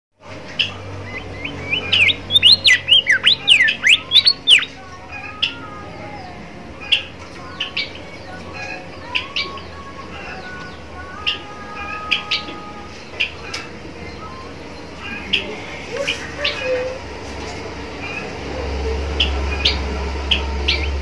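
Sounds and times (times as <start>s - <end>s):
songbird singing whistled notes: 0.6s - 4.8s
faint lower bird warbling: 0.6s - 5.7s.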